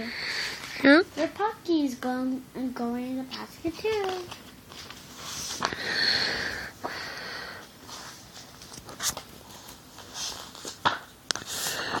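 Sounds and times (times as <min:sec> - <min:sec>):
breathy sniff: 0:05.2 - 0:08.2, 0:11.4 - 0:12.0
soft breathing: 0:05.2 - 0:08.3, 0:11.4 - 0:12.0.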